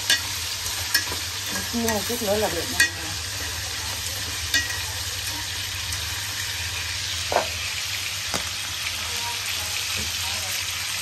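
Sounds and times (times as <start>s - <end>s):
tongs clinking on pan: 0.0s - 6.4s
hot oil sizzling: 0.0s - 11.0s.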